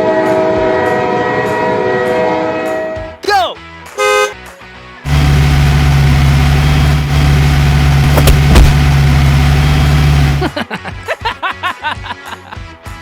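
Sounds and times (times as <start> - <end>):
vehicle engine running: 5.1 - 10.6
brief knocks: 8.0 - 9.0.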